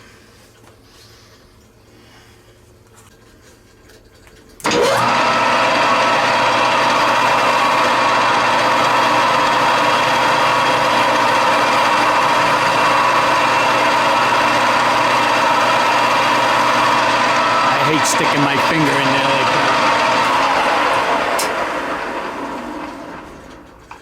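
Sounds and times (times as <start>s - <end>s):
metal lathe running: 4.6s - 23.7s.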